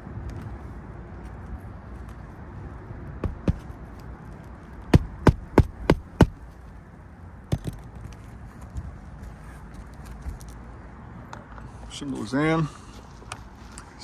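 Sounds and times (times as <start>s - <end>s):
hammer striking nails: 3.2s - 3.6s, 4.9s - 6.4s.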